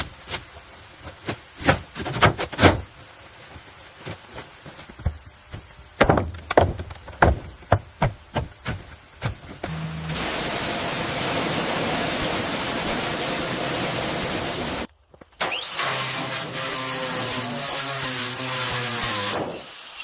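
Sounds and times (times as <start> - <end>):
irregular knocks and thuds: 4.0 - 9.7.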